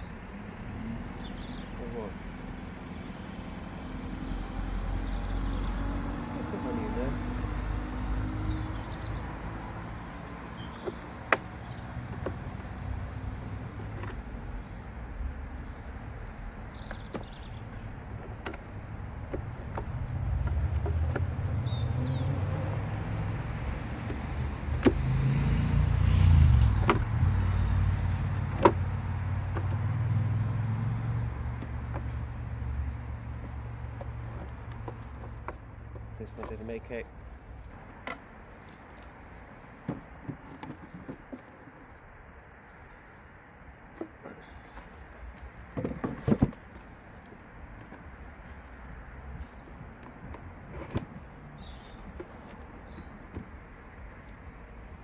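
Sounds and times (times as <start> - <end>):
vehicle rumble: 0.0 - 55.0.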